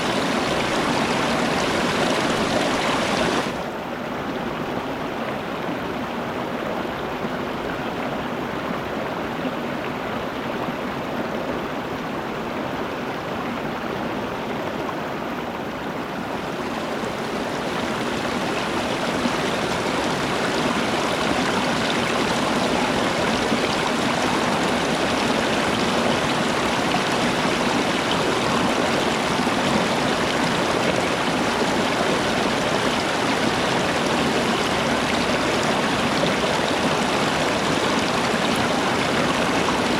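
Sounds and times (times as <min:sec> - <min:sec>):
running water: 0:00.0 - 0:03.8, 0:16.0 - 0:39.9.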